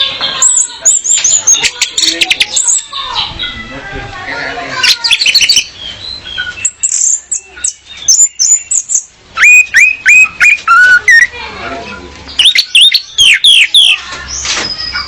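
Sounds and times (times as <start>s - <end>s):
thrush singing whistled notes: 5.0s - 11.4s, 12.4s - 15.0s.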